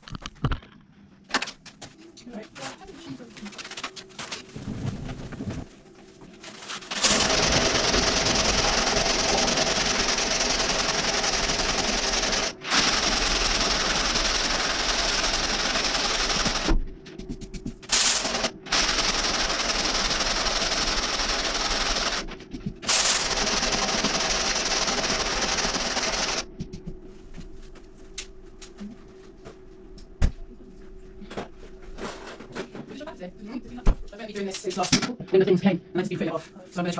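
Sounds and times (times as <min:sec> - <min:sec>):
running motor: 0:06.9 - 0:27.0.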